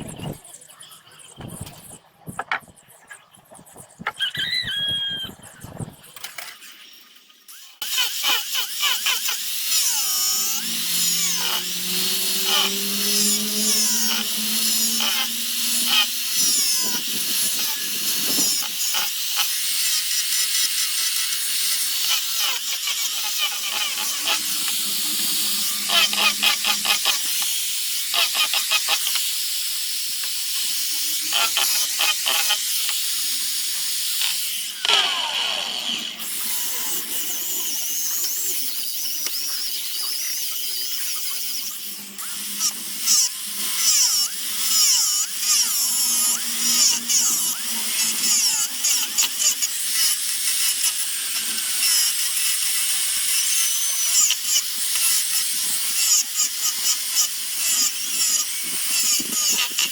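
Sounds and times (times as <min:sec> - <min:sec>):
rotary tool grinding wood: 0:01.3 - 0:06.8, 0:07.5 - 0:59.9.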